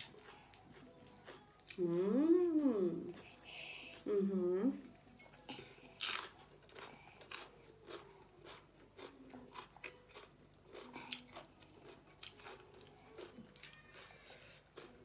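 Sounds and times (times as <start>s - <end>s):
chewing and biting clams: 6.0s - 15.0s.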